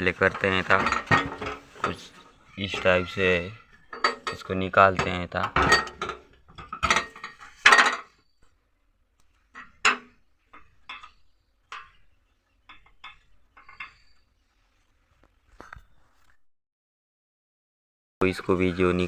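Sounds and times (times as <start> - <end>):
metal stove parts clinking: 0.0 - 3.2, 3.8 - 8.2, 9.2 - 14.2.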